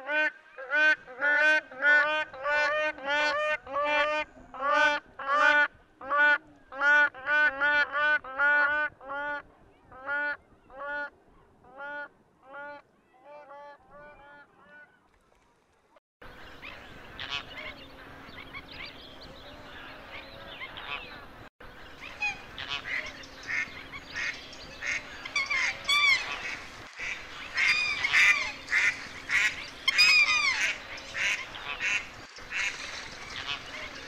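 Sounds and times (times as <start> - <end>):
waterfowl honking: 0.1 - 9.4, 16.6 - 18.9, 22.0 - 34.0.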